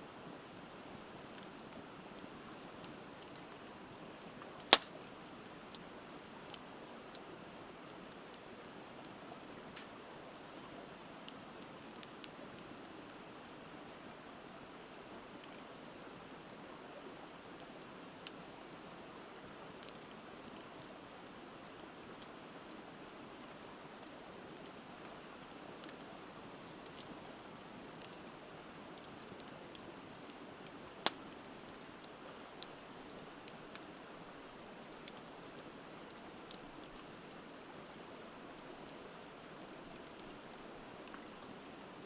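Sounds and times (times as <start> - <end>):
wood fire crackling and popping: 0.1 - 42.0.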